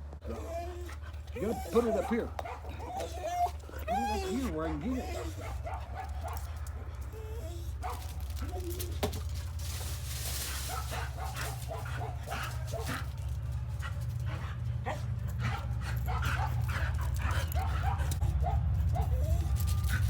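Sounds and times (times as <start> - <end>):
dog whining and yipping: 0.2 - 6.4, 7.1 - 9.2, 18.8 - 20.0.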